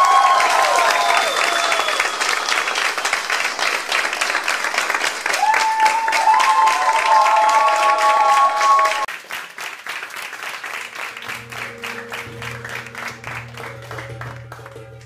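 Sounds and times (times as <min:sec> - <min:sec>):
applause: 0:00.0 - 0:15.0
music with long low notes: 0:10.7 - 0:15.0
held high note: 0:10.8 - 0:15.0.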